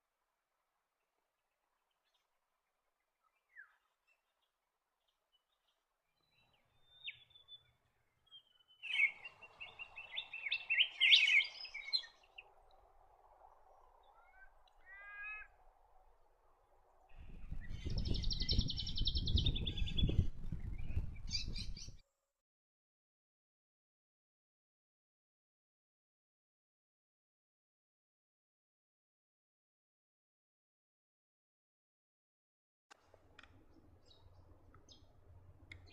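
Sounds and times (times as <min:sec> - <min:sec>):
birds chirping: 0:03.2 - 0:12.9, 0:13.8 - 0:15.6, 0:17.2 - 0:22.0.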